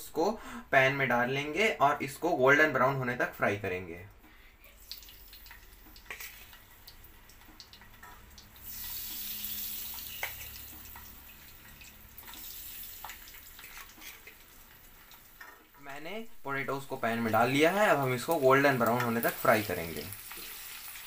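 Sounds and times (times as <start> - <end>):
loud sizzling hiss: 8.6 - 13.8, 16.5 - 21.0.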